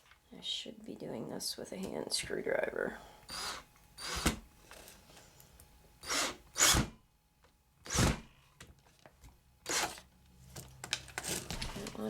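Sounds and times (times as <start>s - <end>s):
cordless drill driving screw into metal: 3.3s - 4.4s, 6.0s - 7.0s, 7.8s - 8.3s, 9.6s - 10.0s.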